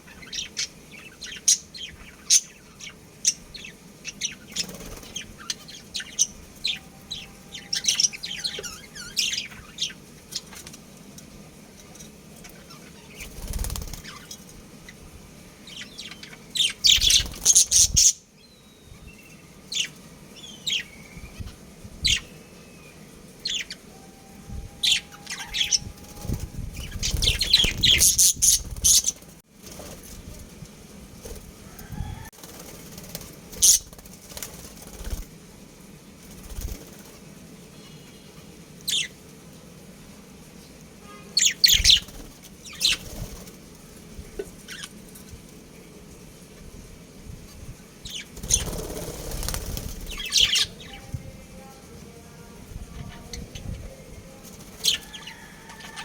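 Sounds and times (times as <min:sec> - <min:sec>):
wings flapping: 0:04.5 - 0:05.5, 0:13.1 - 0:14.6, 0:16.8 - 0:18.1, 0:25.4 - 0:30.6, 0:31.2 - 0:35.4, 0:36.2 - 0:37.3, 0:41.6 - 0:44.0, 0:48.1 - 0:50.8, 0:54.3 - 0:56.0
budgerigars chirping: 0:26.8 - 0:29.2, 0:33.6 - 0:33.9.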